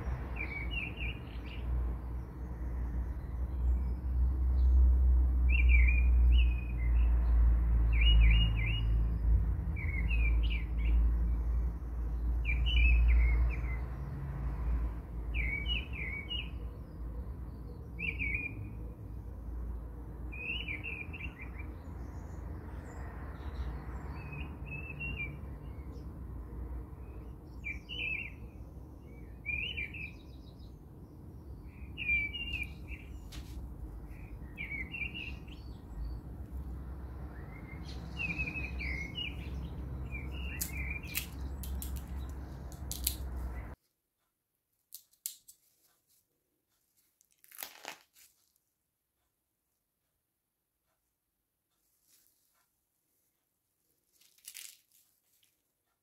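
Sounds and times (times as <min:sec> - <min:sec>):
bird twittering: 0:31.6 - 0:33.3.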